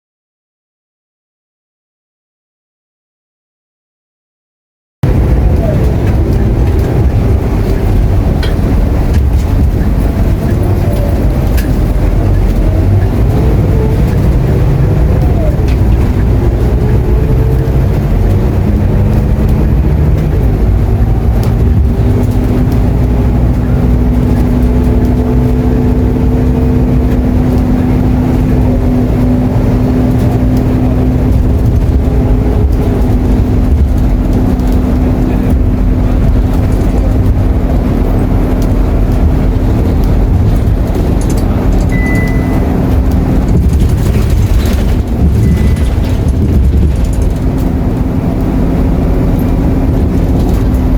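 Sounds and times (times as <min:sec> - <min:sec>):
bus engine drone with whine: 0:05.0 - 0:50.9
short high beep: 0:41.9 - 0:42.7, 0:45.4 - 0:45.9.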